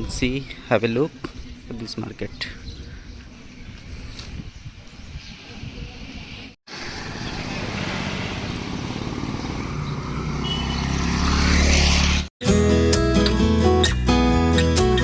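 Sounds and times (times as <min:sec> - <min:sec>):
road noise: 0:05.4 - 0:12.3
vehicle engine hum: 0:06.7 - 0:12.3.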